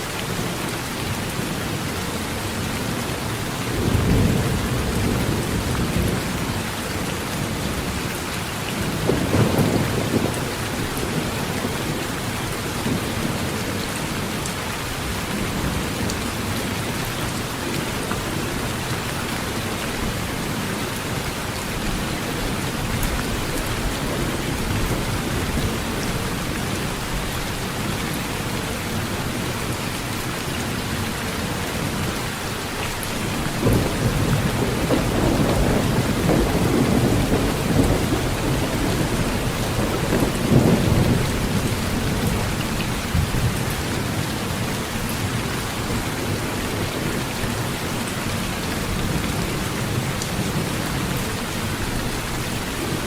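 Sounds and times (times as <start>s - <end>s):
heavy rain on metal roof: 0.0s - 53.0s
low thunder rumble: 33.6s - 44.2s.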